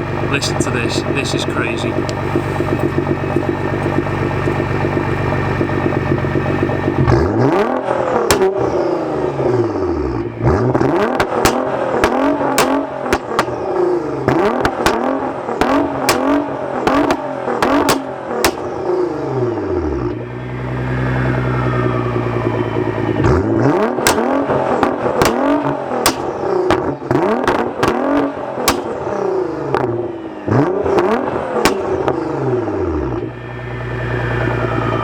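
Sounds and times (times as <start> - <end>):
car engine revving: 0.0 - 35.0
exhaust pops and bangs: 0.2 - 7.2, 8.2 - 8.7, 11.0 - 18.9, 23.2 - 29.1, 31.6 - 32.2.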